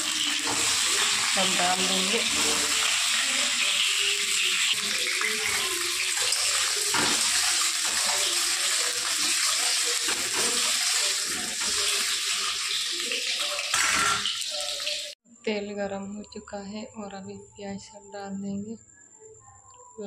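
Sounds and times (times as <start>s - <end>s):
eggs sizzling in hot oil: 0.0s - 15.2s.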